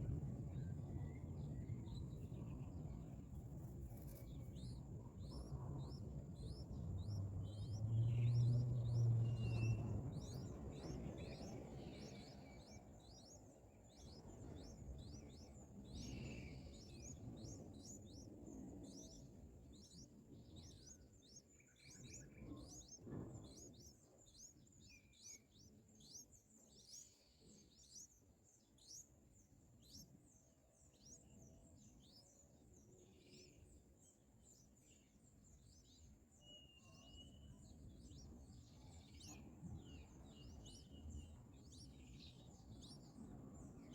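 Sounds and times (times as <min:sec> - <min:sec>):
nestlings chirping: 0:03.5 - 0:12.8.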